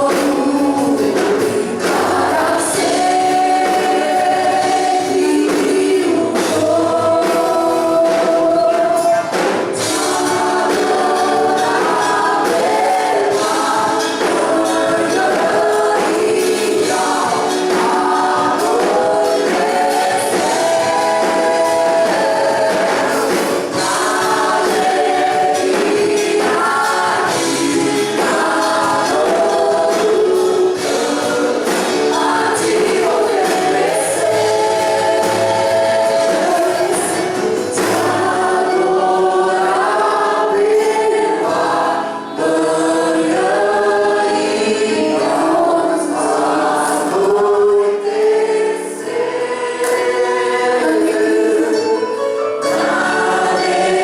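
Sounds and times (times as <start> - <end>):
accompanying music: 0.0 - 54.0
choir singing worship song: 0.0 - 54.0.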